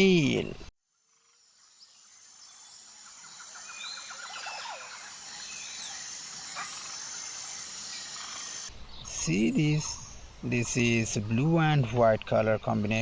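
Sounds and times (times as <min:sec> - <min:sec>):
high insect buzz: 0:00.9 - 0:10.2
bird trill: 0:01.2 - 0:11.7
bird chirps: 0:01.6 - 0:13.0.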